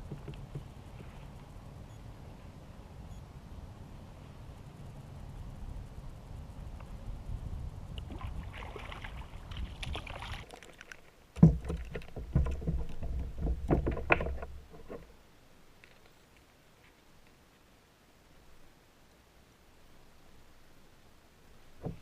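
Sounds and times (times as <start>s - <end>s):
water sloshing: 8.0s - 14.4s
knocks on kayak hull: 11.4s - 14.4s.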